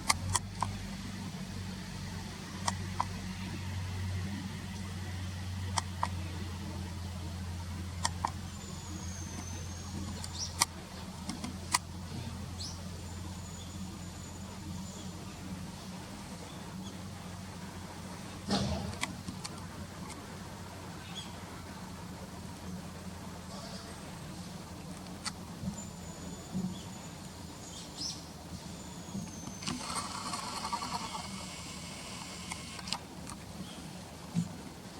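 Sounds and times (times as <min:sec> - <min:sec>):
distant road traffic hum: 0:00.0 - 0:34.9
small birds calling: 0:08.1 - 0:11.1, 0:21.0 - 0:21.4, 0:25.6 - 0:32.9
sharp clicks: 0:29.3 - 0:33.4.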